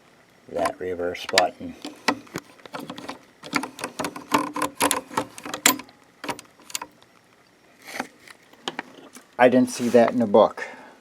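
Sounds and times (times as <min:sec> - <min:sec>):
sewing machine selector clicking: 0:01.3 - 0:06.9.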